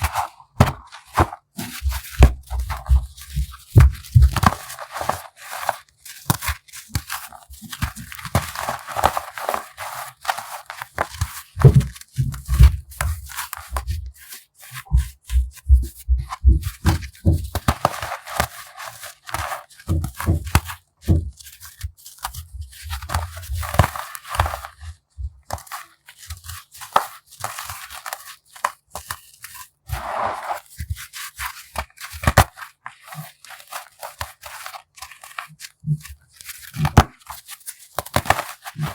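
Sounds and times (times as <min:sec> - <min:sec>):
soft low thumps: 0:01.8 - 0:04.4, 0:14.9 - 0:17.5.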